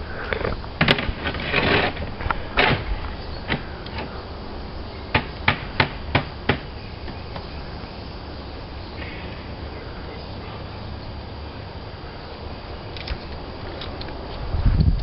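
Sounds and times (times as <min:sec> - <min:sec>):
slate scraping: 0:00.0 - 0:04.2.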